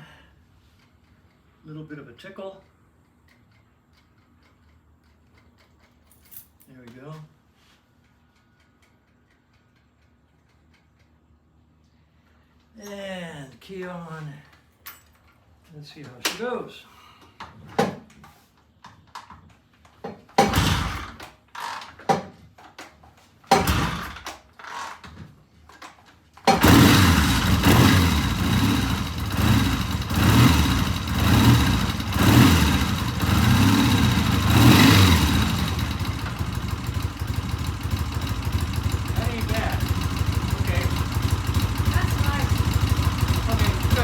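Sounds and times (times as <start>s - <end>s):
motorcycle engine starting and revving: 20.4s - 22.0s, 23.5s - 25.2s, 25.8s - 44.0s.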